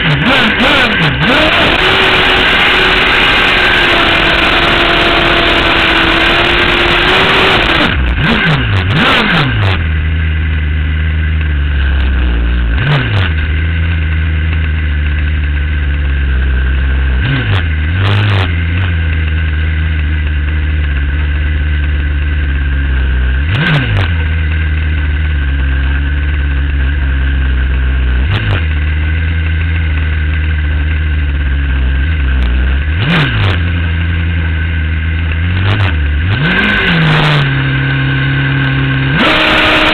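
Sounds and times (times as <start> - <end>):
sharp throttle blips: 0.0 - 10.3, 11.3 - 14.9, 22.4 - 39.9
motorcycle engine revving: 0.0 - 39.9
motorcycle engine idling: 7.9 - 33.0, 33.6 - 36.3.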